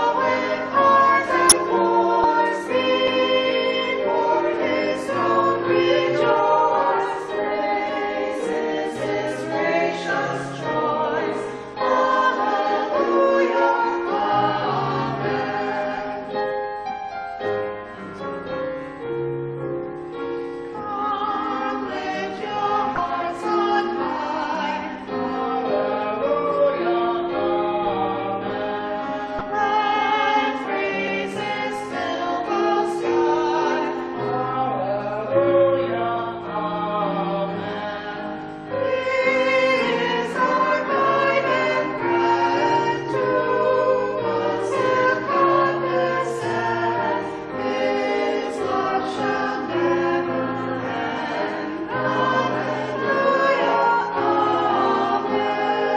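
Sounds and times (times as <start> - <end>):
choir singing a hymn: 0.0 - 55.9.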